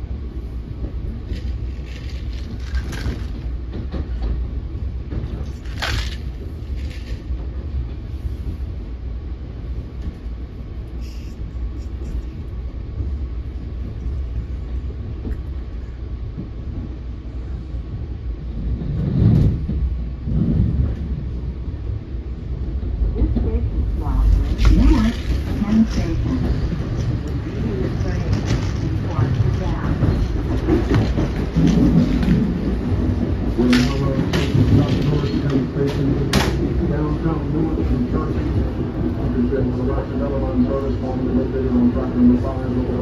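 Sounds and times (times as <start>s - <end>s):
train wheels rumbling: 0.0s - 43.0s
sharp rattling noises: 1.2s - 4.4s.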